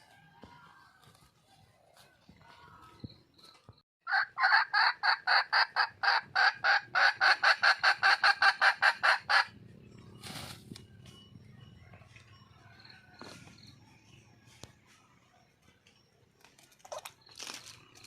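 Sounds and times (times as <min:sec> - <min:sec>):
hen cackling call: 0:04.1 - 0:09.6.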